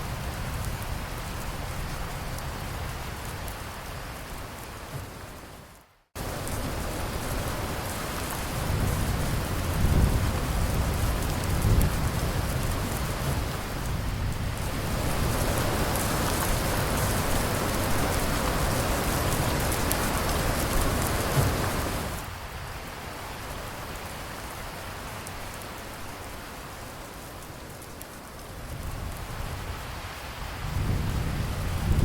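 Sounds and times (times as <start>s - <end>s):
low thunder rumble: 0.0s - 5.6s, 6.2s - 23.0s, 28.4s - 32.0s
rain hissing and pattering: 0.0s - 32.0s.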